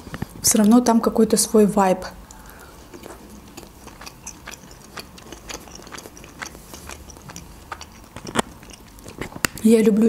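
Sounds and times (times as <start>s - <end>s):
mouth clicks: 2.3s - 9.6s
chewing with wet mouth smacks: 2.3s - 9.7s.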